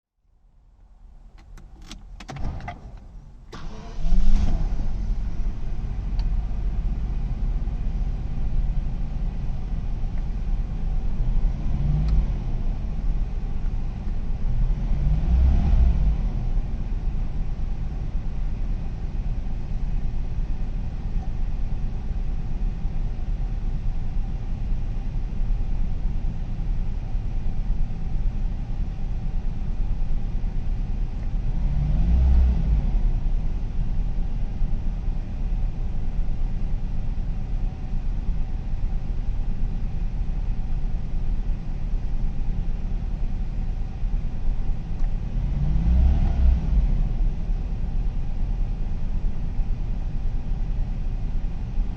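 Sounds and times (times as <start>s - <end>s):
car engine idling: 0.4s - 15.4s, 16.0s - 32.0s, 32.9s - 45.9s, 46.9s - 51.9s
engine throttle blips: 1.2s - 13.6s.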